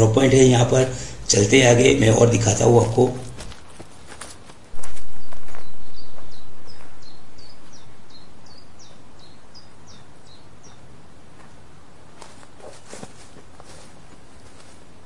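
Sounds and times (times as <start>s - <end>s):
outdoor background hiss: 0.0s - 15.0s
bird chirps sliding down: 4.8s - 10.8s.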